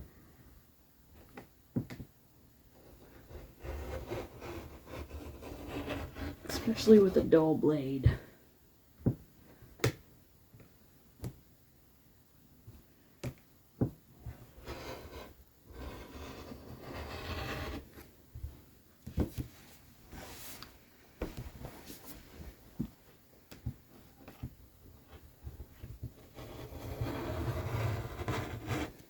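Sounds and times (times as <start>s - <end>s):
rotary cutter rasping through fabric: 3.2s - 6.5s.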